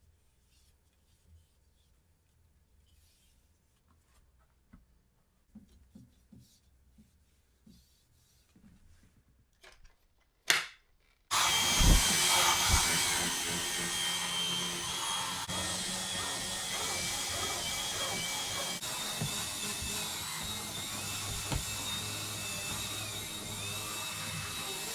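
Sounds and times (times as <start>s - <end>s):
vacuum cleaner motor running: 11.3s - 24.9s.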